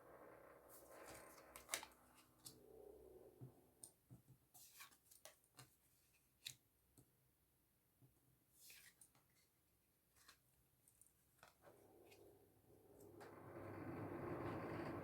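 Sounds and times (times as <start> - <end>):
playing cards clicking and snapping: 1.1 - 1.9.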